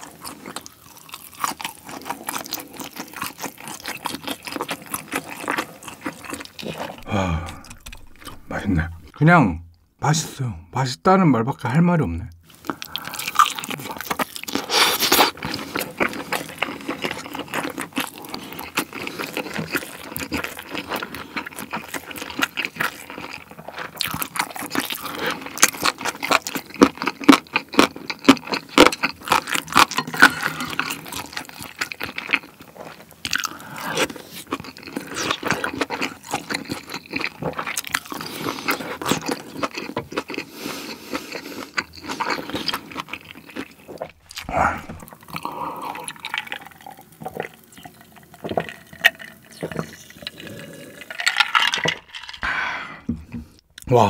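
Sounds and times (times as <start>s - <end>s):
wet chewing with smacks: 12.6s - 50.0s
biting into meat: 41.1s - 47.0s.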